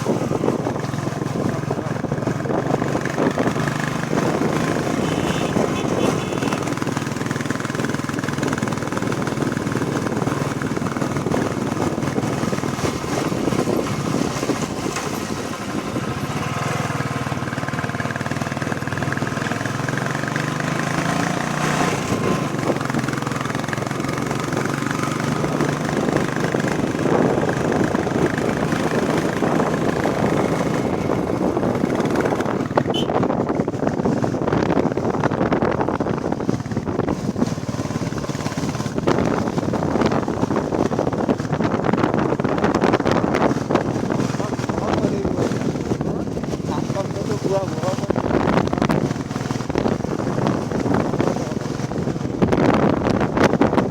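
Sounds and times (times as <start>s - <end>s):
motorcycle engine running: 0.0s - 53.9s
wind rushing over microphone: 0.0s - 53.9s.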